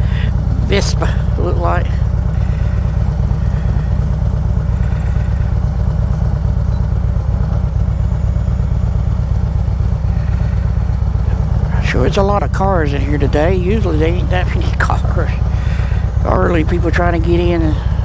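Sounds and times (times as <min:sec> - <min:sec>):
motorcycle engine low rumble: 0:00.0 - 0:18.0.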